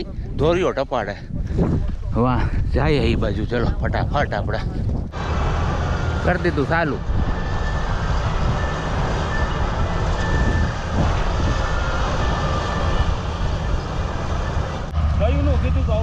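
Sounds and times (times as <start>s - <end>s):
combine harvester running: 5.1s - 16.0s.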